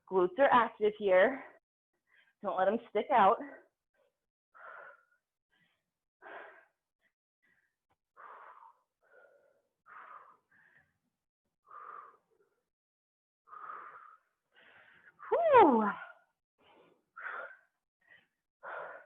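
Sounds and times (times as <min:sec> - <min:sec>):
person breathing heavily: 0:04.5 - 0:12.7, 0:13.5 - 0:15.3, 0:16.1 - 0:19.0.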